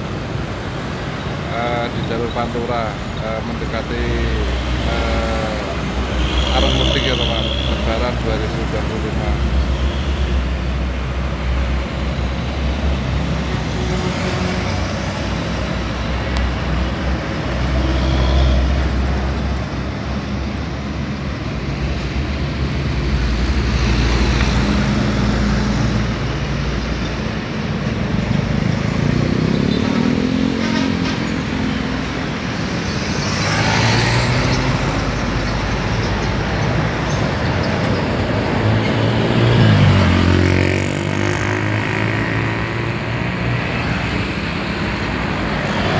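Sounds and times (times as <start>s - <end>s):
highway traffic rumble: 0.0s - 45.9s
vehicle engines revving: 0.6s - 45.9s.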